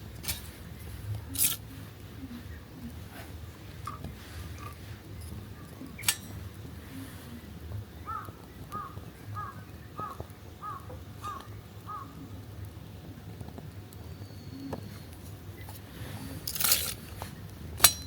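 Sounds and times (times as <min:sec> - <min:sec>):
crow cawing: 0:08.0 - 0:12.1.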